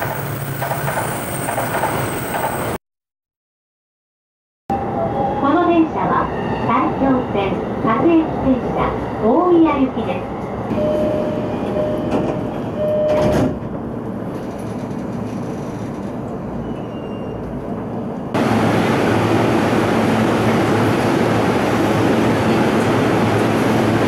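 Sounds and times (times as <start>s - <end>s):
train running noise inside car: 0.0s - 2.8s, 7.0s - 24.0s
train rushing past platform: 4.7s - 24.0s.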